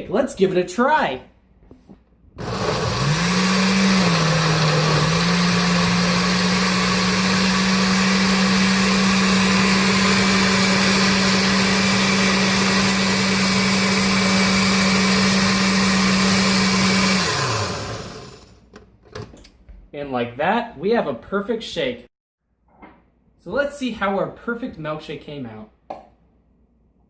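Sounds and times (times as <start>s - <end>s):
blender motor running: 2.4s - 18.6s.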